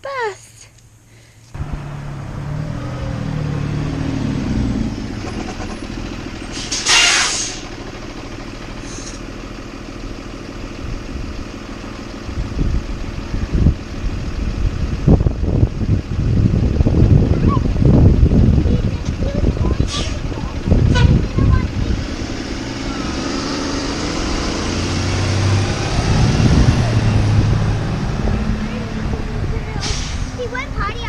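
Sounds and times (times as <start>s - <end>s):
bus engine running: 0.9s - 31.0s
air brakes hissing: 6.4s - 7.8s, 8.8s - 9.3s, 19.8s - 20.3s, 29.8s - 30.5s.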